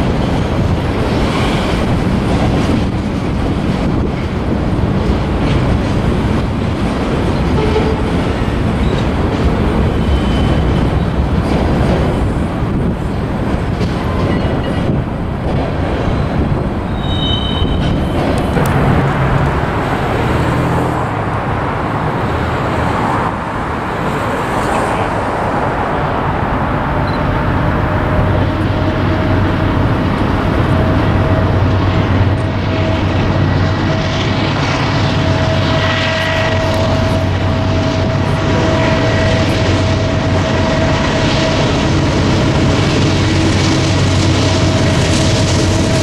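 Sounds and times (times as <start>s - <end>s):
freight train rumbling past: 0.0s - 46.0s.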